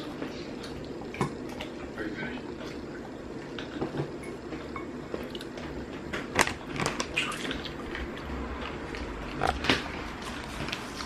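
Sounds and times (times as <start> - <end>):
person chewing salad: 4.4 - 11.0.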